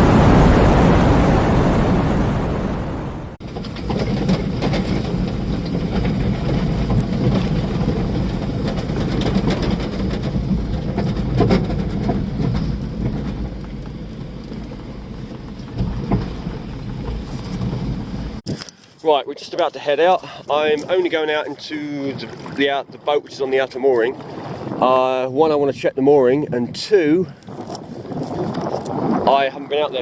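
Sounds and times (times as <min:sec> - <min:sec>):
wind buffeting microphone: 0:00.0 - 0:18.7, 0:19.3 - 0:30.0
knocks and clatters: 0:03.4 - 0:18.7.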